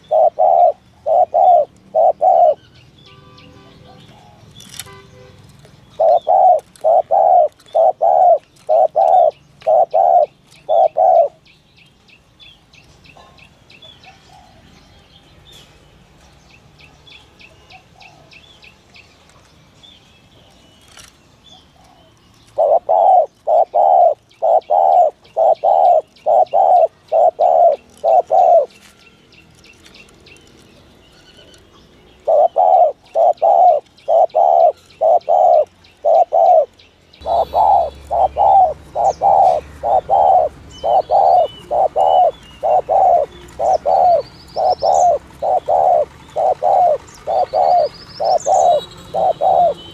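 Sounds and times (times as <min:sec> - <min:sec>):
dove cooing: 0:00.0 - 0:02.7, 0:06.0 - 0:11.4, 0:21.7 - 0:28.9, 0:32.2 - 0:49.9
small birds chirping: 0:00.0 - 0:49.9.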